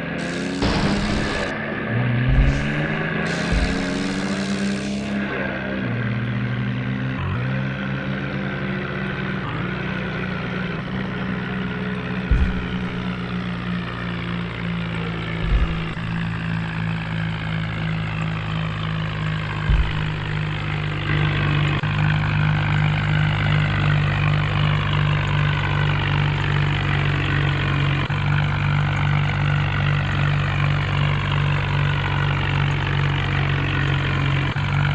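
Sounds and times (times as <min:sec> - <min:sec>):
tractor diesel engine running: 0:00.0 - 0:34.9
short knocks: 0:12.3 - 0:13.2, 0:15.4 - 0:16.4, 0:19.6 - 0:20.4.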